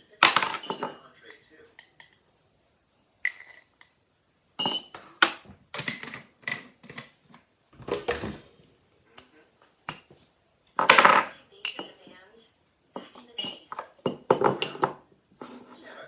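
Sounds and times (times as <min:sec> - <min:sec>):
dishes and cutlery clinking: 0:00.1 - 0:04.0, 0:04.6 - 0:07.1, 0:09.1 - 0:12.2, 0:13.0 - 0:16.0.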